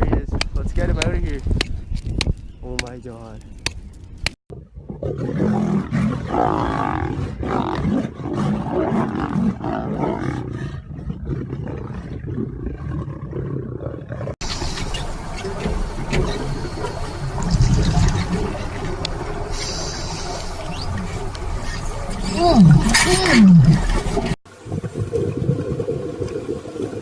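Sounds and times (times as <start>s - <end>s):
large animal roaring: 4.8s - 14.4s.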